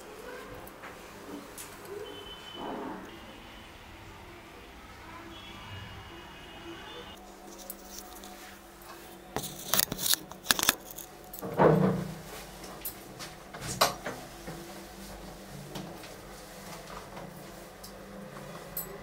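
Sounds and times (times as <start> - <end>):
small hard objects clinking: 9.4 - 11.4.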